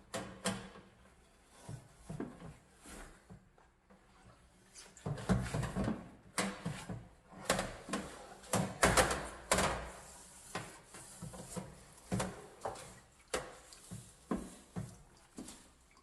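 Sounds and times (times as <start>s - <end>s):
knocks and scrubbing in oven: 5.0s - 15.6s.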